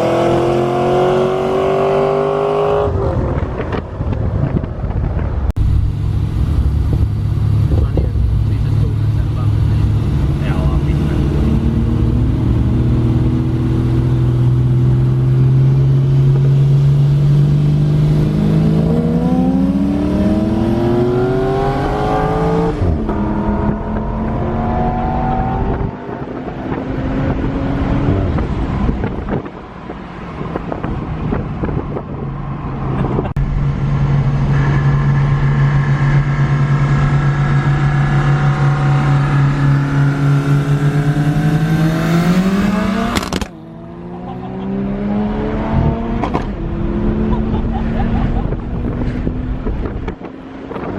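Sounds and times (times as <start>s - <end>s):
car engine revving: 0.0s - 29.6s, 30.4s - 50.9s.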